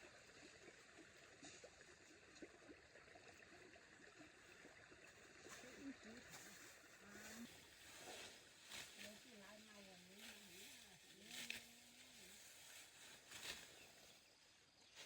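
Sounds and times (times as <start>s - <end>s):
faint rustling and crackling: 0.0s - 15.0s
faint distant voice: 5.5s - 7.6s.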